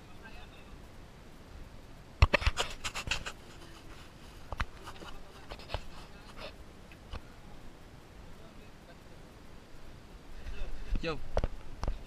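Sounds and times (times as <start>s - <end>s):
close scrapes: 2.3s - 6.6s.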